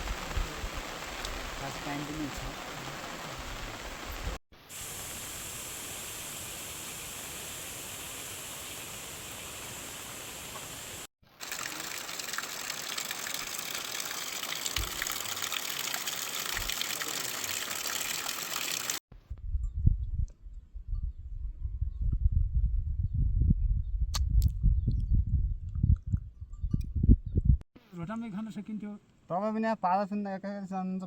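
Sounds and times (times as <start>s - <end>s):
water rushing: 0.0s - 19.0s.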